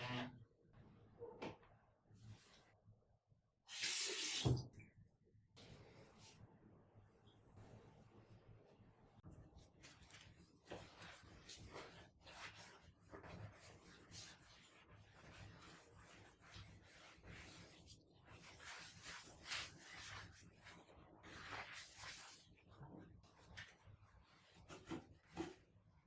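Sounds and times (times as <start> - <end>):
scrubbing on hard surface: 9.8 - 25.6.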